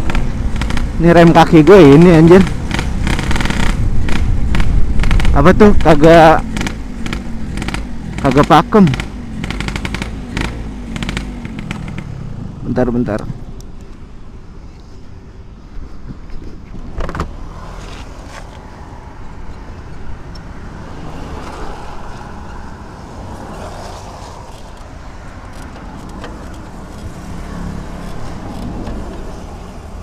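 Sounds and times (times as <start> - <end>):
two-stroke motorcycle engine: 0.0 - 13.1
sharp knocks and clatters: 2.4 - 12.1.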